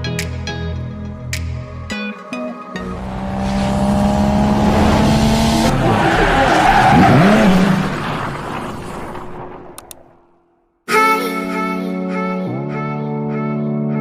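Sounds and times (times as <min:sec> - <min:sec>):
car engine running hard: 0:02.8 - 0:10.0
tyres skidding and squealing: 0:02.8 - 0:10.4.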